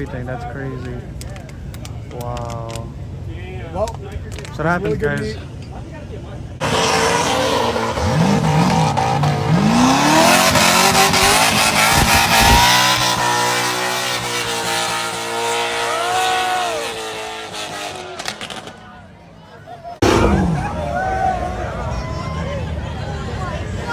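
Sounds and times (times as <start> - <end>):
car engine revving: 6.6 - 18.8, 20.0 - 23.9
tires squealing: 6.6 - 19.0, 20.0 - 23.9.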